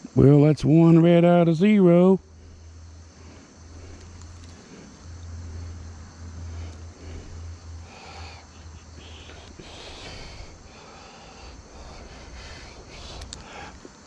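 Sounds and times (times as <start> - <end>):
insects droning: 0.0 - 14.0
low rumble: 2.2 - 9.0.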